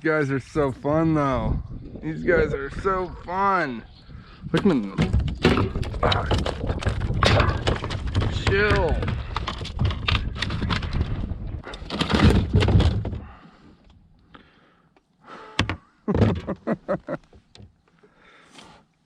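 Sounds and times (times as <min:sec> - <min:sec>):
clattering and knocking in kayak: 0:04.5 - 0:13.4, 0:15.6 - 0:17.8.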